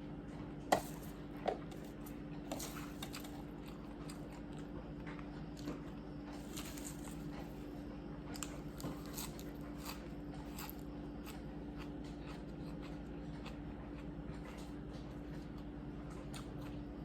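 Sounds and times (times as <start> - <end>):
steady low hum: 0.0 - 17.0
person biting and chewing food: 5.5 - 7.6, 8.3 - 14.8.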